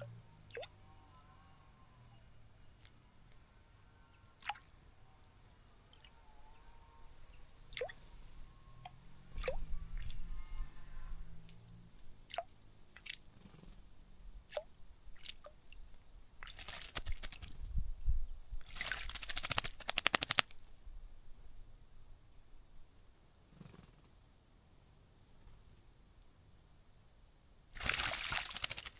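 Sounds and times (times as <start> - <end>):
water drips and flicks: 0.0 - 0.8, 4.4 - 4.8, 7.7 - 8.1, 8.8 - 10.3, 11.4 - 13.4, 14.5 - 17.6, 18.6 - 20.6, 27.8 - 28.9
bird wings splashing water: 16.4 - 17.6, 18.7 - 20.6, 27.8 - 28.9.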